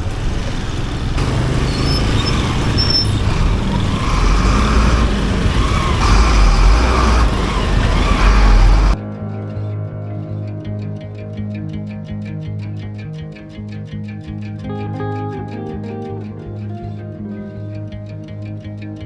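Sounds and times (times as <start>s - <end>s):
deep rumble: 0.0s - 9.0s
vehicle engines running: 0.0s - 9.0s.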